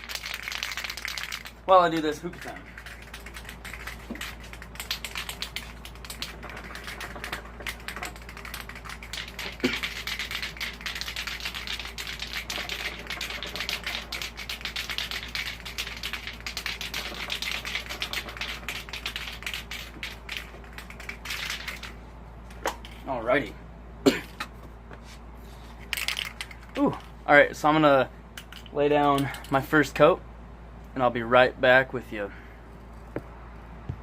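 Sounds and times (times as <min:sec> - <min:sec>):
spray can ball rattling: 0:00.0 - 0:23.0, 0:25.8 - 0:27.2, 0:28.4 - 0:29.4.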